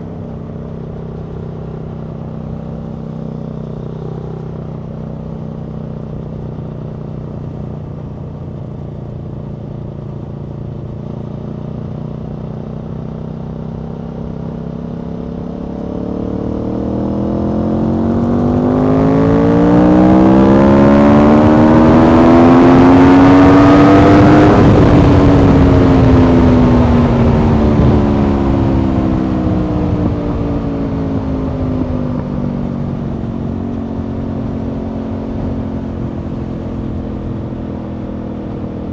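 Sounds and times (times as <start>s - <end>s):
motorcycle engine revving: 0.0s - 38.9s
wind rush: 21.2s - 36.3s.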